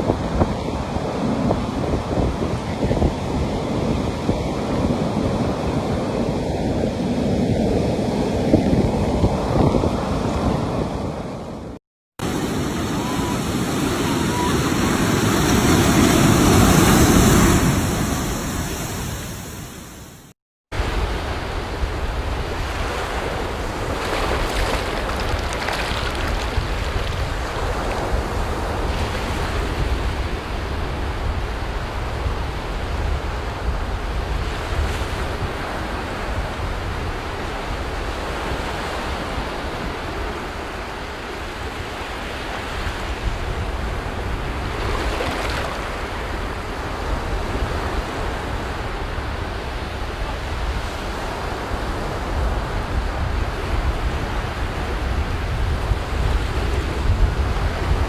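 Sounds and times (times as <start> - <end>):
wind rumble on microphone: 0.0 - 20.0, 20.8 - 58.0
sea waves breaking on beach: 12.2 - 19.9, 20.8 - 58.0.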